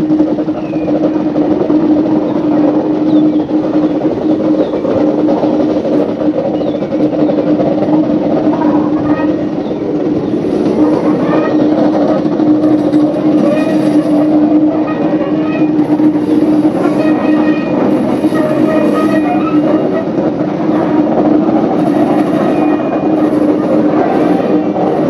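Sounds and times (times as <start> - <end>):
train wheels rolling on track: 0.0 - 25.0
wheel squeals: 8.7 - 20.2.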